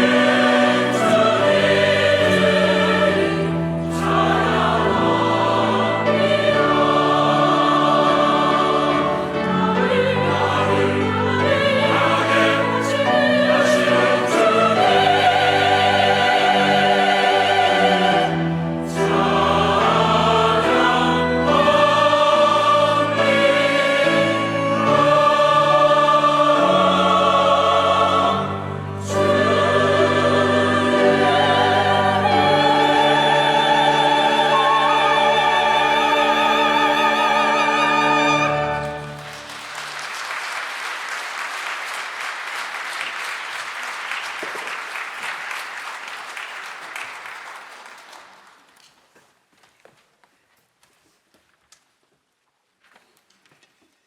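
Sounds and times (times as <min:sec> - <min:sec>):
choir singing with orchestra: 0:00.0 - 0:39.7
applause: 0:39.0 - 0:49.0.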